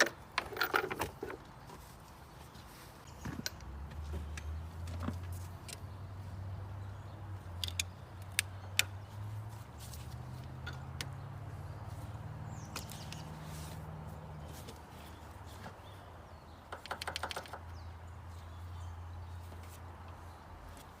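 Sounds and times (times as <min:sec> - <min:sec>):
sharp clicks and taps: 0:16.7 - 0:17.7.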